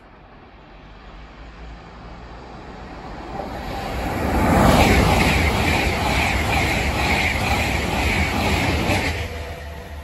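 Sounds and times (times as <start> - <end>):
train passing at speed: 0.0 - 10.0.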